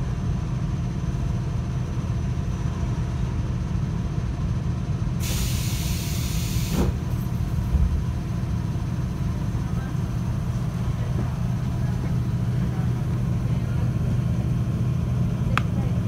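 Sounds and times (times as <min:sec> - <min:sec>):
train interior low rumble: 0:00.0 - 0:16.0
compressed air hiss: 0:05.2 - 0:06.9.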